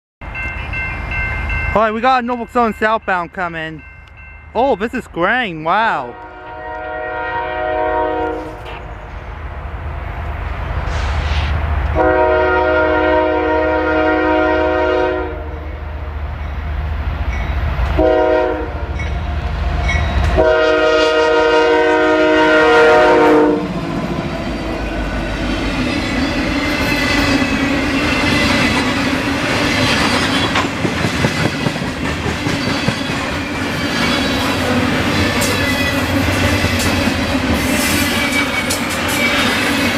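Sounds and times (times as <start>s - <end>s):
diesel locomotive horn: 6.1s - 8.9s, 12.0s - 16.2s, 17.9s - 19.2s, 20.2s - 23.8s
wheels clacking over rail joints: 23.9s - 39.9s.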